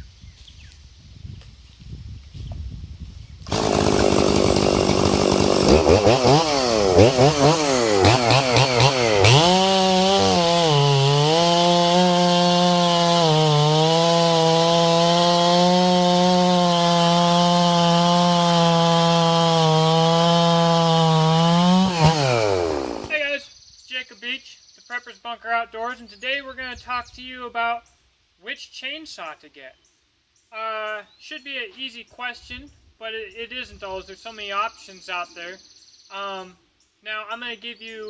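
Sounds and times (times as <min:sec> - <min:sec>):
chainsaw revving: 0:03.4 - 0:23.2.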